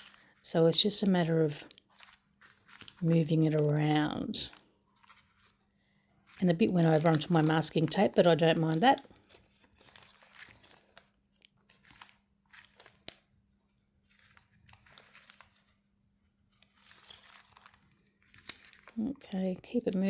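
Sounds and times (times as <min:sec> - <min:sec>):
paper and packing tape rustling: 0:00.0 - 0:05.6, 0:06.2 - 0:15.8, 0:16.5 - 0:20.0.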